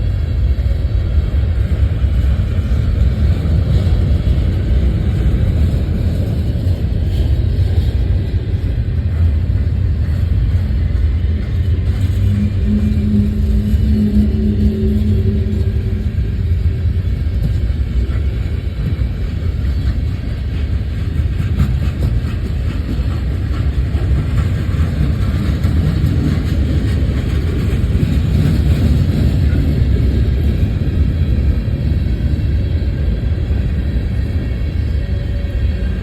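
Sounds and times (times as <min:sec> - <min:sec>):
train rumbling past: 0:00.0 - 0:36.0
droning tone: 0:09.2 - 0:19.8.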